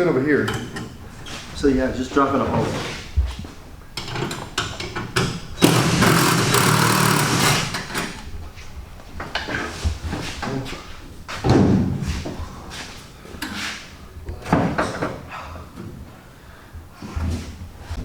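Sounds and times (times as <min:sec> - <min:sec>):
workshop knocks and thuds: 0:05.2 - 0:08.2, 0:11.3 - 0:12.4.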